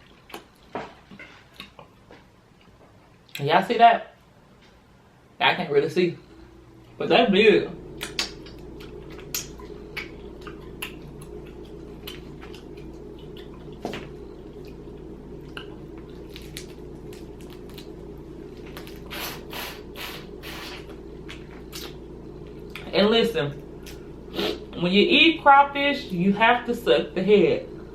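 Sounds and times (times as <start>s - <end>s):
low background hum: 0.0s - 27.9s
wet squishing: 8.0s - 22.0s.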